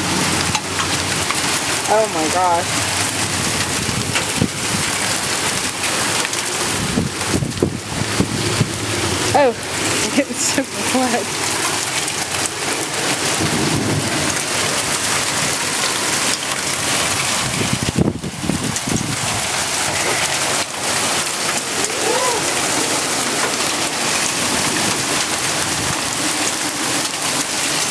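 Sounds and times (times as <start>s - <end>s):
low thunder rumble: 0.0s - 21.8s
heavy rain pouring: 0.0s - 27.9s.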